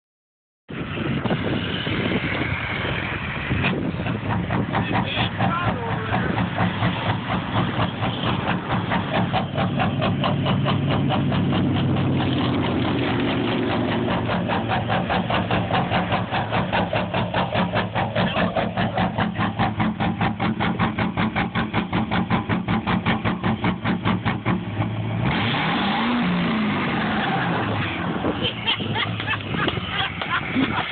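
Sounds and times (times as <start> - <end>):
diesel engine idling roughly: 3.0 - 25.0.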